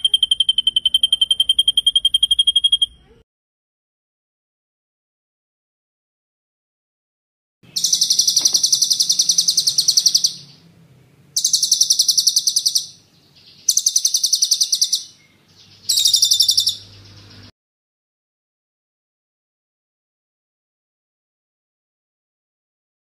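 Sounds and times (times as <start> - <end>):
songbird rolling trills: 7.7 - 10.7, 11.4 - 17.5.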